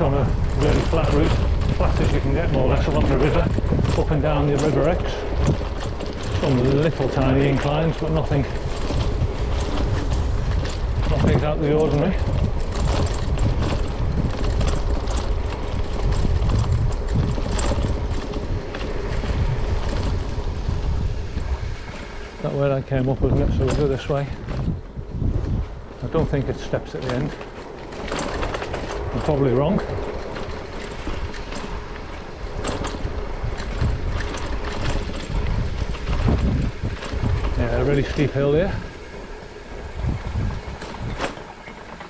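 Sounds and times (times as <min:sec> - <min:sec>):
bike rattling on rough road: 0:00.0 - 0:42.0
wind buffeting microphone: 0:00.0 - 0:42.0.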